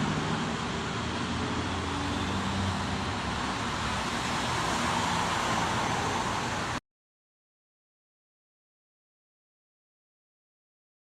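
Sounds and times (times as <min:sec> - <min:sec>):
engine running low: 0:00.0 - 0:06.8
road noise hiss: 0:00.0 - 0:06.8.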